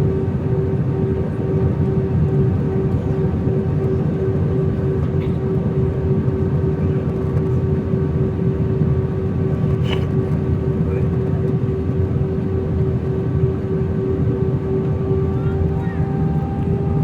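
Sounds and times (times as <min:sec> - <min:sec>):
airflow and engines rumbling: 0:00.0 - 0:17.0
steady hum on one note: 0:14.6 - 0:17.0.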